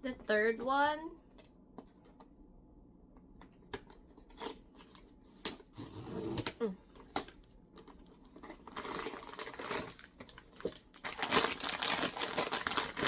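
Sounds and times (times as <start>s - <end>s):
plastic packaging crinkling: 7.0s - 13.0s.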